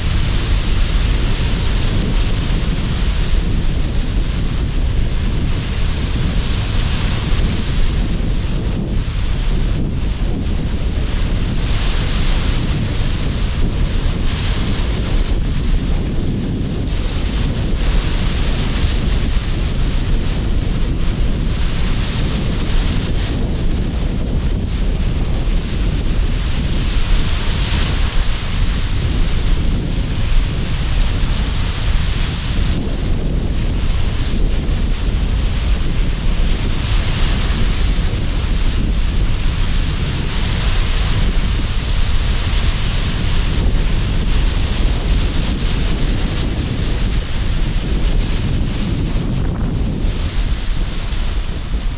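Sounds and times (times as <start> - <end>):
sea surf: 0.0 - 51.9
wind buffeting microphone: 0.0 - 51.9.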